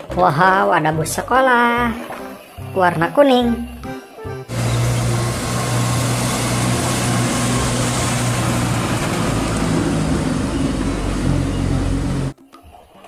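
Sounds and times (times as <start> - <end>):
road noise rushing: 4.5 - 12.3
vehicle engine hum: 4.5 - 12.4.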